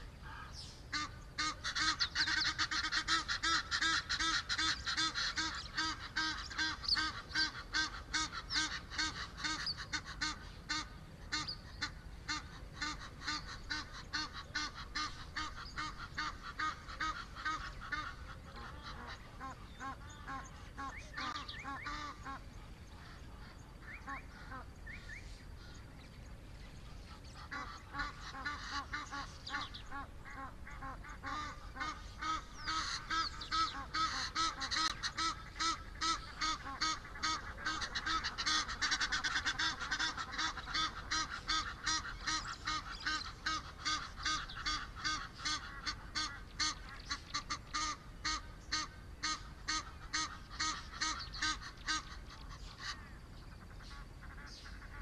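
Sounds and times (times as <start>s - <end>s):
bird calling repeated notes: 27.4s - 53.0s.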